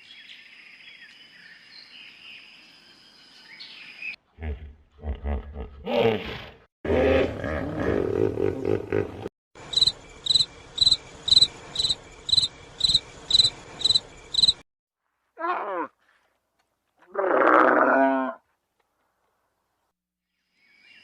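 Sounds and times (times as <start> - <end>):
high repeated chirp: 9.7 - 14.6.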